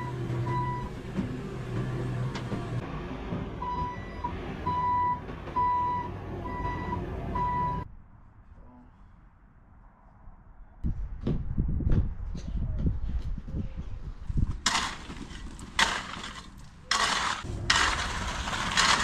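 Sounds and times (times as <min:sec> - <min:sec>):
reversing alarm beeping: 0:00.0 - 0:01.0, 0:03.6 - 0:07.8
diesel engine running: 0:00.0 - 0:07.8, 0:14.6 - 0:19.0.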